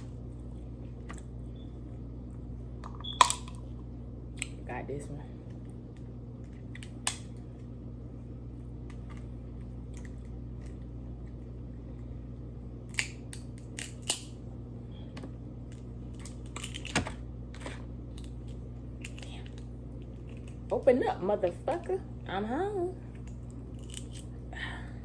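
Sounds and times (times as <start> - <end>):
crab shell cracking: 12.9 - 14.3.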